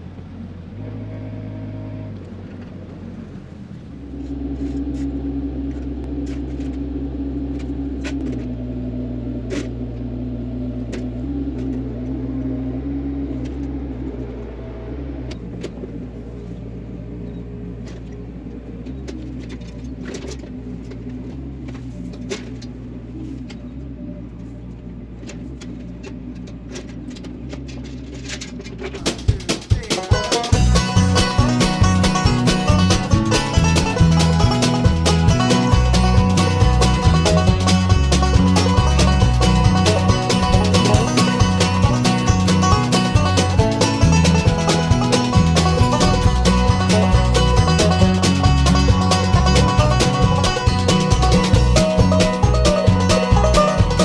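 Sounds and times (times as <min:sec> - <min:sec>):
diesel engine running: 0:00.0 - 0:54.0
clanks and knocks: 0:25.2 - 0:54.0.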